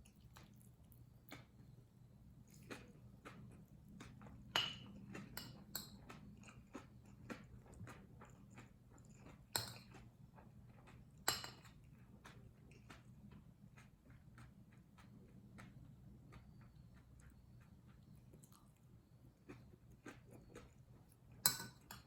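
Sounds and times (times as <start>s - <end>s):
chewing and mouth clicks: 0.0s - 1.8s, 2.4s - 22.0s
low steady hum: 0.0s - 22.0s
cutlery clinking against dish: 4.5s - 6.2s, 11.2s - 11.8s, 21.4s - 22.0s.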